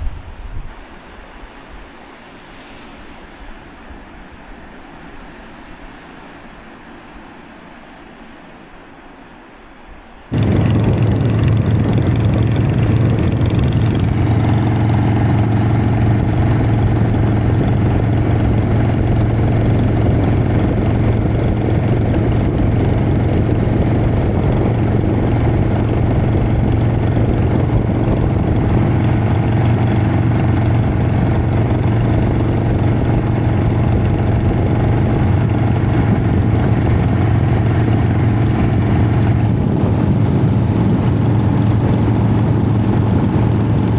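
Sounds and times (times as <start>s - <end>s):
motorcycle engine running: 10.3s - 43.9s.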